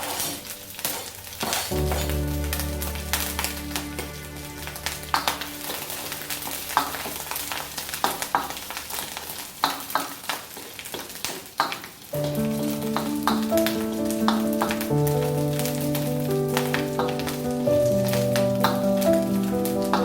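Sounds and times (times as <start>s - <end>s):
spatula scraping a pan: 0.0s - 2.2s
background music: 0.0s - 8.8s, 12.1s - 20.0s
food sizzling in hot oil: 4.8s - 11.2s.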